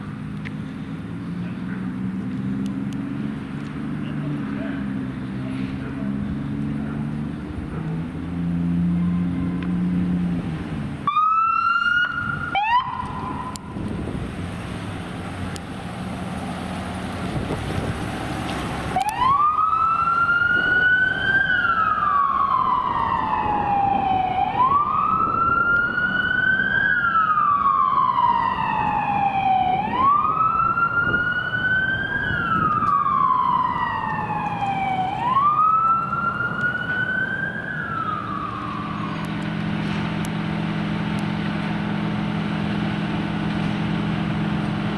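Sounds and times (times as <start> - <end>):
vehicle engine running: 0.0 - 11.1
siren wailing: 8.4 - 10.4, 11.0 - 13.9, 18.9 - 39.6
siren chirps: 8.6 - 10.0, 11.0 - 13.8, 19.0 - 39.5.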